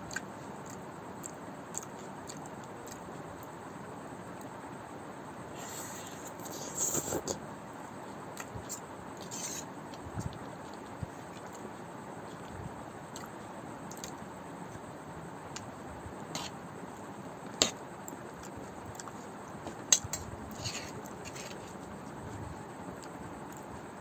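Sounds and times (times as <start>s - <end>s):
soft chewing and squishing: 0.0s - 3.5s, 5.6s - 14.9s, 16.4s - 24.0s
steady hiss: 4.9s - 24.0s.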